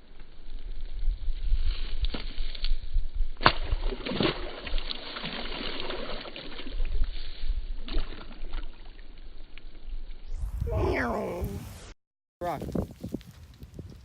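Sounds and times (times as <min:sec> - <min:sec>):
wind buffeting microphone: 0:10.4 - 0:14.0.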